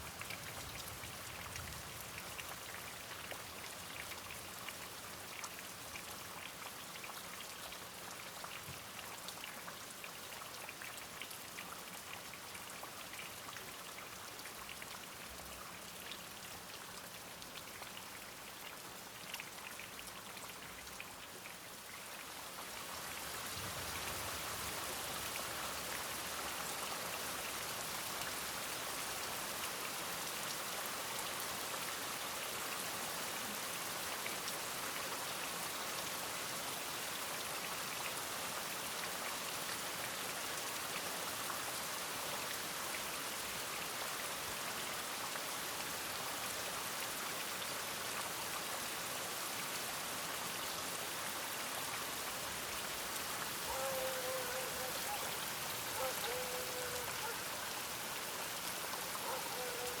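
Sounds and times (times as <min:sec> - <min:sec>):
rain pattering: 0:00.0 - 0:49.0, 0:50.0 - 1:00.0.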